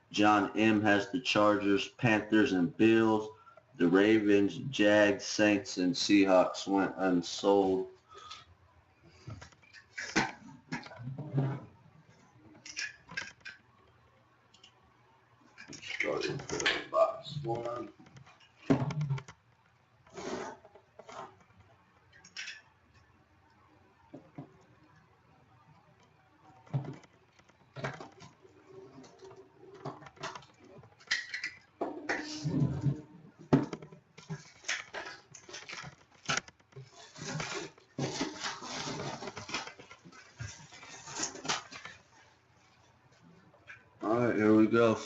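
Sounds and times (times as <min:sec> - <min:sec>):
packaging rustling and tearing: 0:34.5 - 0:42.0.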